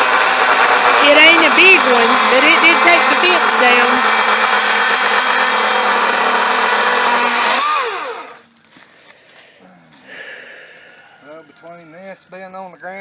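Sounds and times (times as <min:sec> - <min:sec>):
motor running and winding down: 0:00.0 - 0:08.4.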